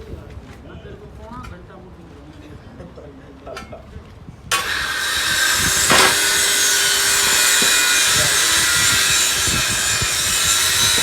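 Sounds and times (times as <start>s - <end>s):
power tool running: 4.5s - 11.0s.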